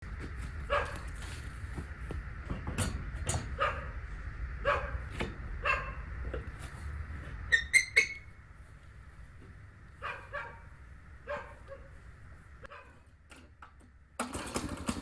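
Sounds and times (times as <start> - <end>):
dog barking: 0.6 - 1.1, 3.5 - 4.0, 4.6 - 6.1, 10.0 - 12.0, 12.6 - 13.0.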